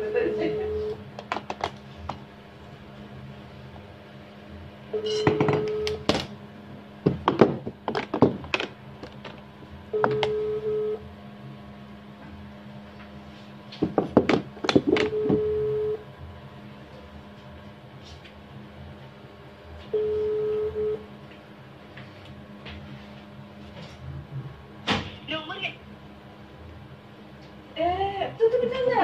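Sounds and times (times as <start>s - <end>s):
telephone ringback beeps: 5.0s - 6.0s, 10.0s - 11.0s, 15.1s - 16.0s, 20.0s - 21.0s.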